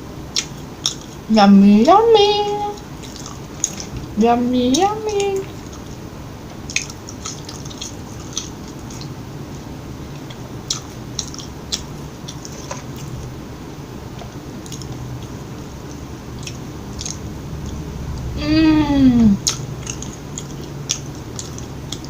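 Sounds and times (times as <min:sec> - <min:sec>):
steady low hum: 0:00.0 - 0:22.0
chewing food: 0:00.3 - 0:01.3, 0:02.5 - 0:13.4, 0:14.1 - 0:17.8, 0:19.4 - 0:22.0
wet mouth clicks: 0:06.7 - 0:09.1, 0:10.2 - 0:13.1, 0:16.4 - 0:17.2, 0:19.4 - 0:22.0.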